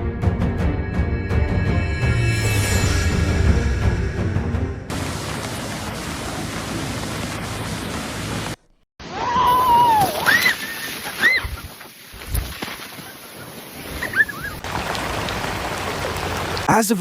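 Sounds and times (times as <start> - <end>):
rushing floodwater: 4.9 - 8.6, 9.5 - 17.0.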